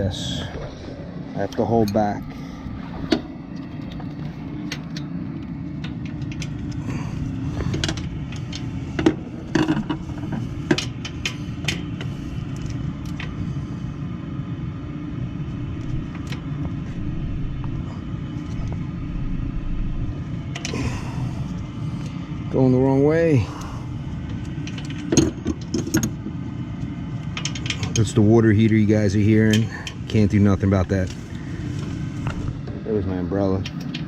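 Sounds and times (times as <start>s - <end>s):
water heater rumbling: 0.0s - 34.0s.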